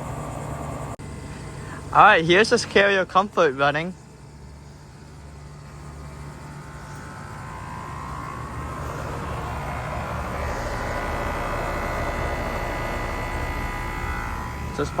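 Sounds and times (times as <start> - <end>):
heat pump compressor and fan: 0.0 - 15.0
steady higher tones: 0.0 - 15.0
low hum: 3.9 - 15.0.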